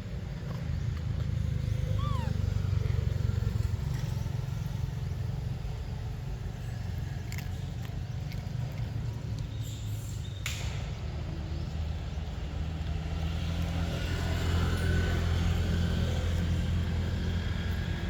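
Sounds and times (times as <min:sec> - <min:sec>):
low engine-like rumble: 0:00.0 - 0:18.0.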